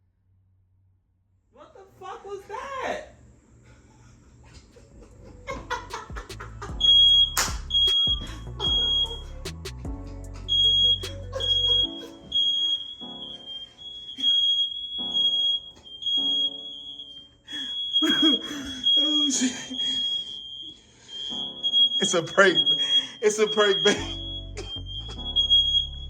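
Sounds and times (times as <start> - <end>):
smoke alarm beeping: 6.6 - 9.5, 10.5 - 26.0.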